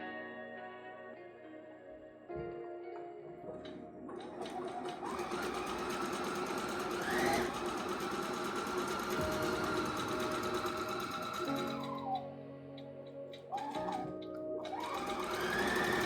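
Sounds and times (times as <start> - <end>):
quiet background music: 0.0 - 16.0
sewing machine running: 4.1 - 12.2, 13.5 - 16.0.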